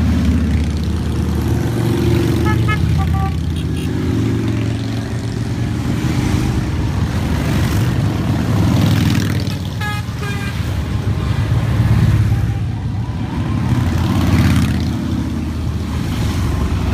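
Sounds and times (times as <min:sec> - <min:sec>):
motorcycles riding past: 0:00.0 - 0:16.9
horn toot: 0:02.3 - 0:04.0, 0:09.5 - 0:10.8.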